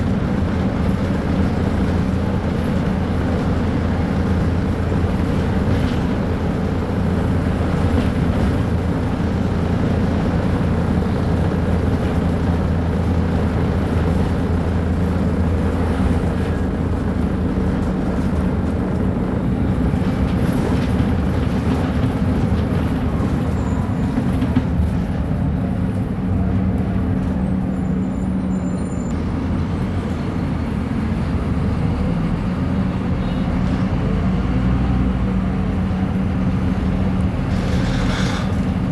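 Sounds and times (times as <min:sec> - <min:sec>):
bus diesel engine droning: 0:00.0 - 0:38.9.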